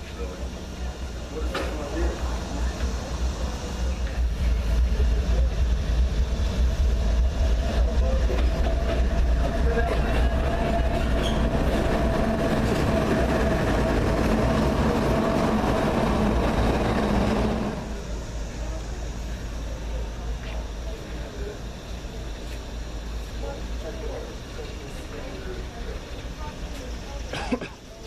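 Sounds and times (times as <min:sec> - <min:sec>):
train rumbling past: 0:00.0 - 0:28.0
faint held squeal: 0:09.8 - 0:11.8.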